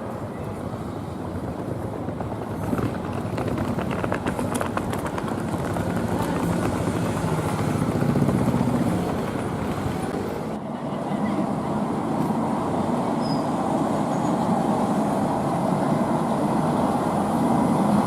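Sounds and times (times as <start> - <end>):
tram humming past: 0.0 - 18.0
wheels clicking: 1.3 - 10.6.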